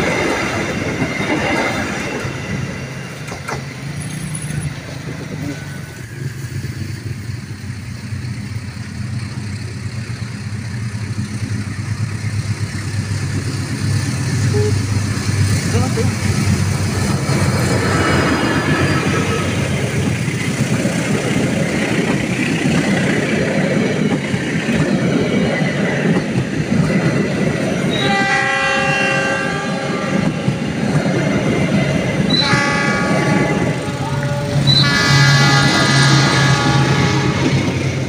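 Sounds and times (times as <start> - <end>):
train engine rumble: 0.0 - 38.0
train horn blasts: 27.9 - 30.6, 32.3 - 37.9.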